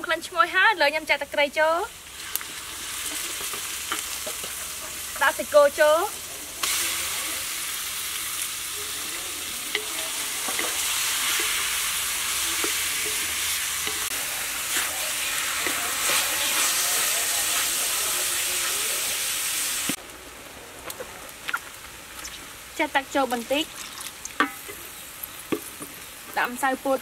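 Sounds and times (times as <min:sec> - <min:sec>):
beef sizzling in a wok: 0:00.0 - 0:27.0
wooden spatula scraping a pan: 0:09.1 - 0:18.8.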